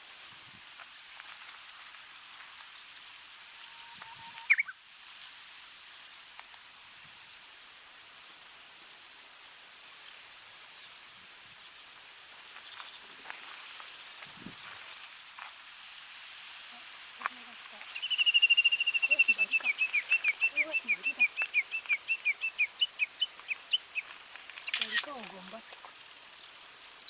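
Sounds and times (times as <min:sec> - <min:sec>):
steady hiss: 0:00.0 - 0:27.0
bush warbler singing: 0:01.8 - 0:06.2, 0:17.2 - 0:27.0.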